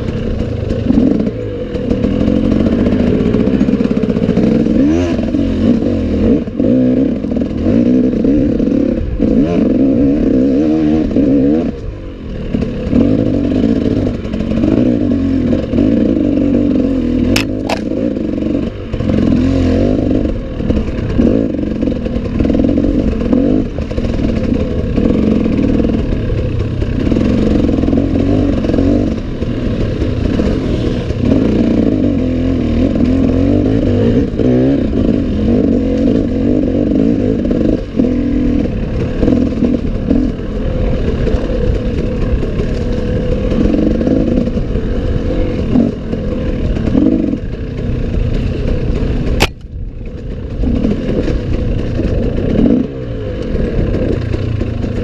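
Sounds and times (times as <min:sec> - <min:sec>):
clatter from rough trail: 0:00.0 - 0:55.0
dirt bike engine running hard: 0:00.0 - 0:55.0
sharp click: 0:17.4 - 0:18.0, 0:49.4 - 0:49.7.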